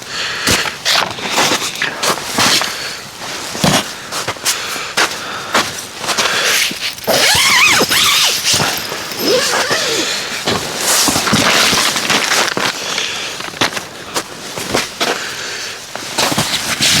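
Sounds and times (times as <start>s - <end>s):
short whistling squeals: 6.6s - 10.4s.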